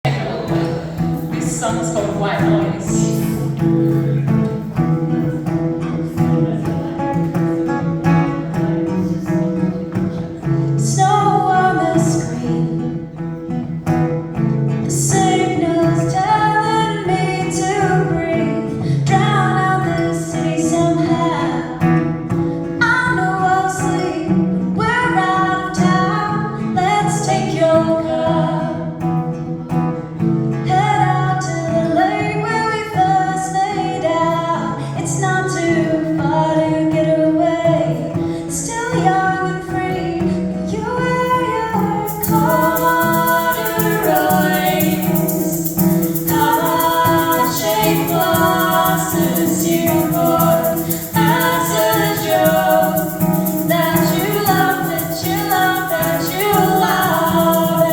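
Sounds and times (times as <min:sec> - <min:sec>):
guitar playing: 0:00.0 - 0:57.9
person singing: 0:40.8 - 0:57.9.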